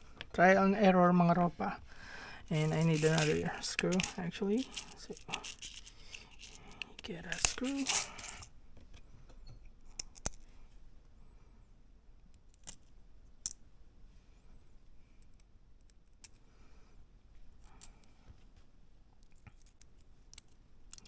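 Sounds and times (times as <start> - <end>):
faint rustling: 1.4 - 8.5
small parts clicking and tapping: 2.5 - 9.0, 9.9 - 10.5, 12.3 - 13.6, 19.2 - 21.0.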